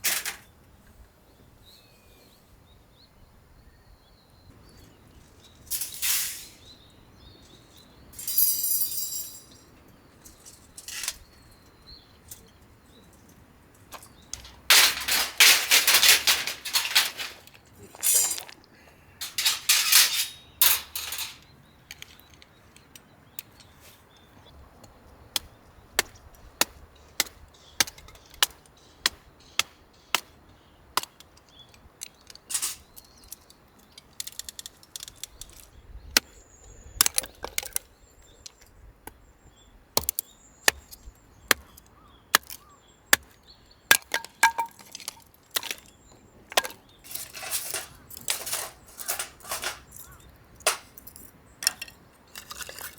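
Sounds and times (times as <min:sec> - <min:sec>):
firewood cracking: 0:25.4 - 0:36.3, 0:40.0 - 0:52.9.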